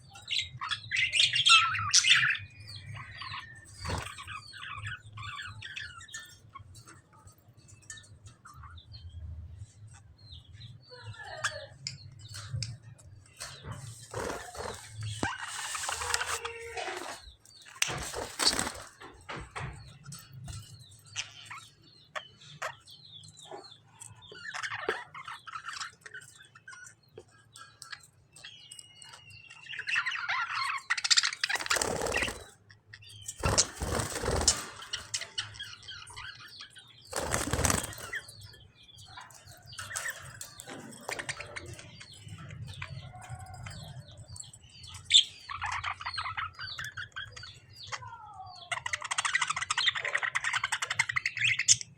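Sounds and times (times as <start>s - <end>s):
small birds chirping and squawking: 0.0s - 51.9s
wings flapping: 13.7s - 19.2s, 31.5s - 32.5s, 33.4s - 35.4s, 37.1s - 38.3s.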